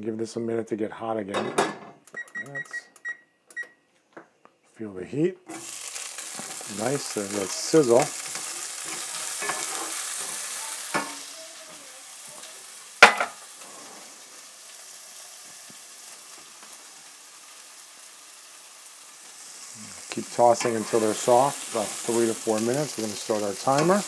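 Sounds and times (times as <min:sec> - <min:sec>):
food sizzling in oil: 0:05.5 - 0:24.0.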